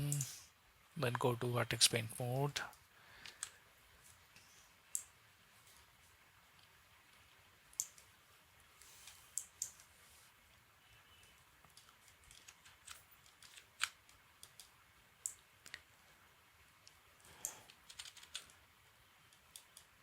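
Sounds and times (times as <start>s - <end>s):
mouse and keyboard clicks: 11.7s - 15.8s, 17.4s - 18.6s.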